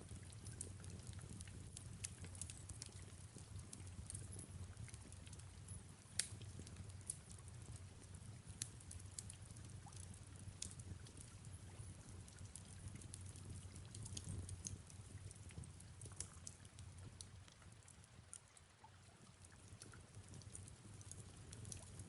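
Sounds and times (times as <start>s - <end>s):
fireplace crackling and popping: 0.0s - 22.0s
soft rain: 0.0s - 22.0s.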